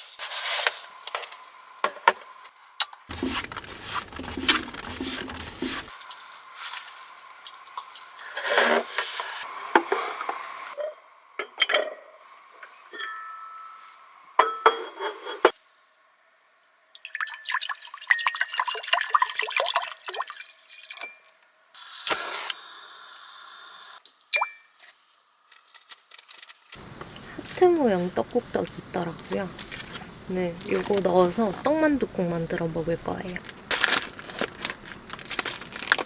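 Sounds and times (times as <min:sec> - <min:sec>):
dishes and glass clinking: 0:10.8 - 0:12.1, 0:12.9 - 0:15.5
liquid pouring and dripping: 0:16.9 - 0:21.3.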